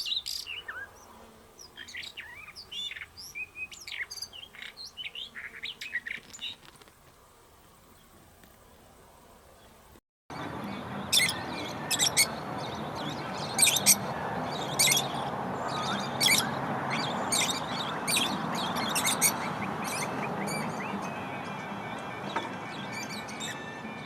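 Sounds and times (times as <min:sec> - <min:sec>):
steady background hiss: 0:00.0 - 0:10.0
small birds chirping: 0:00.0 - 0:23.6.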